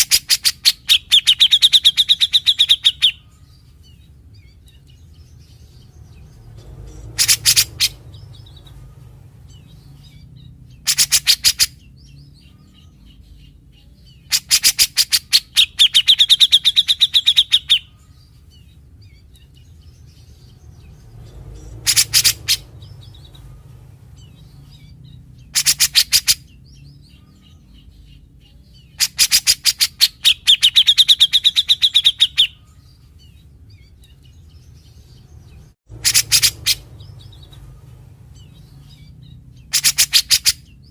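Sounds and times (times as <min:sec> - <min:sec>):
low steady hum: 0:00.0 - 0:14.6, 0:32.4 - 0:39.8
bird singing rasping notes: 0:00.0 - 0:40.9.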